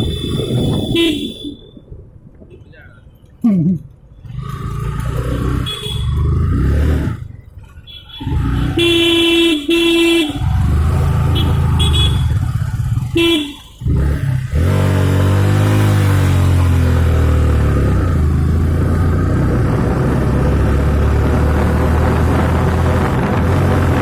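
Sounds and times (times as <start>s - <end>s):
high-pitched horn toots: 0.0s - 1.6s, 8.0s - 14.0s
vehicle horn honking: 0.0s - 1.7s, 5.6s - 6.2s, 7.9s - 13.8s
motorcycle engine running: 8.1s - 24.0s.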